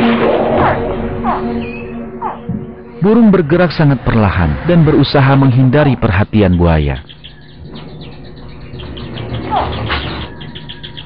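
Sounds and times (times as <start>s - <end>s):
high bird chirps: 1.3s - 3.0s, 6.4s - 11.0s.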